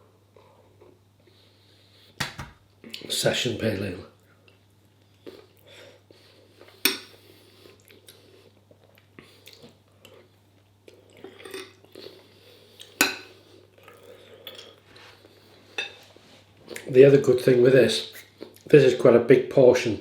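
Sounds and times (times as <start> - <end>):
chewing: 4.5 - 15.6.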